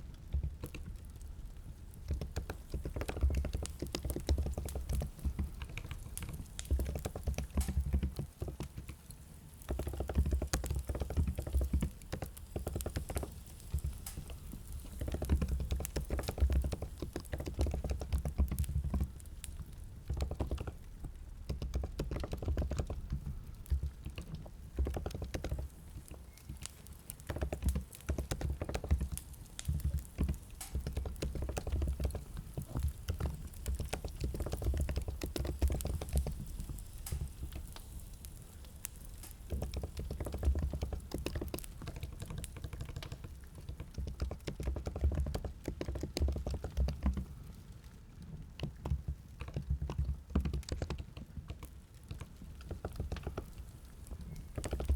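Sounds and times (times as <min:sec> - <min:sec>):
typing on computer keyboard: 0:09.7 - 0:38.0, 0:39.1 - 0:47.3.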